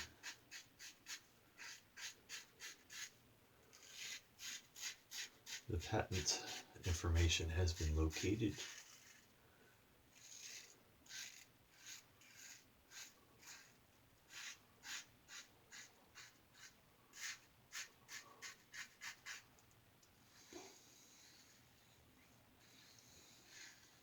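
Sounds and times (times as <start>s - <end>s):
razor scraping stubble: 0.0s - 9.4s, 10.1s - 19.7s.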